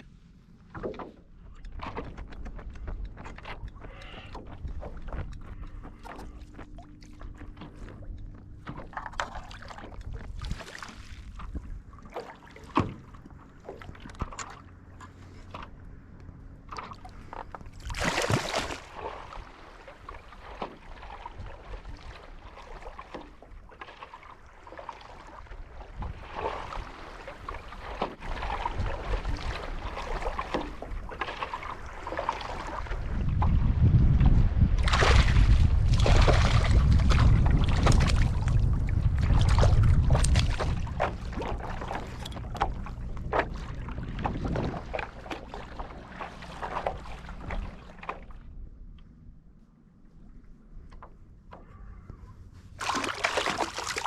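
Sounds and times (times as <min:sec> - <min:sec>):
water sloshing around paddleboard: 0:00.0 - 0:54.0
loud splash: 0:17.8 - 0:21.2, 0:34.8 - 0:38.5, 0:52.8 - 0:54.0.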